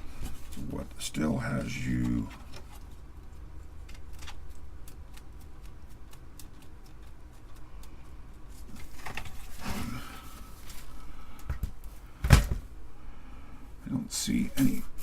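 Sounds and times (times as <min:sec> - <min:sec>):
loud scraping rustle: 0:08.6 - 0:11.1.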